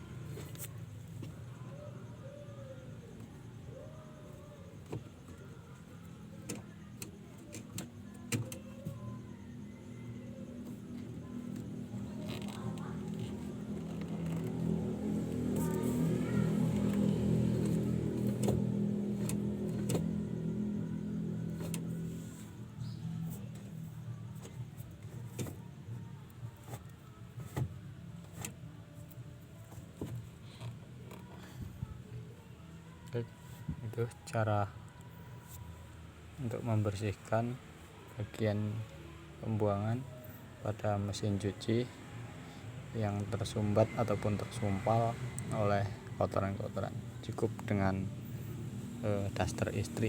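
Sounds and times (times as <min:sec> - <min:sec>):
washing machine motor hum: 0:00.0 - 0:35.3.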